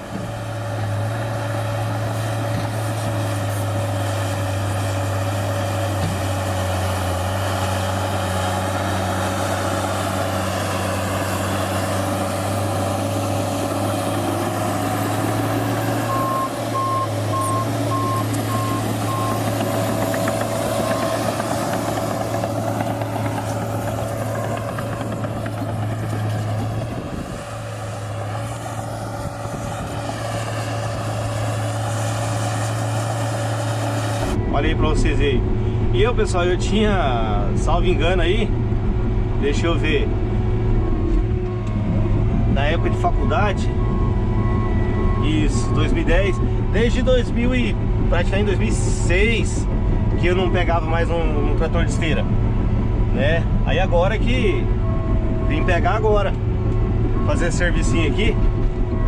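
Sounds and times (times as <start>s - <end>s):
dozer diesel engine under load: 0.0s - 59.0s
backup alarm beeping: 16.1s - 19.5s.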